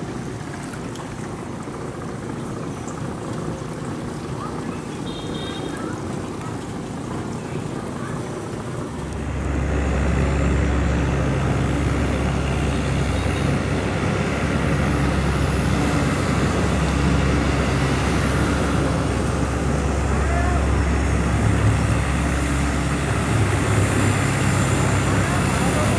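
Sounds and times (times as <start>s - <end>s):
boat engine running: 0.0s - 25.9s.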